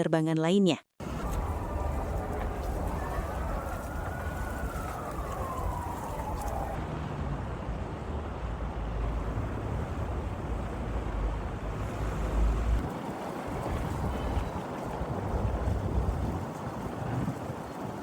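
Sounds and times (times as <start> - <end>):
distant siren wail: 1.0 - 6.8
traffic rumble: 1.0 - 18.0
wind: 1.0 - 18.0.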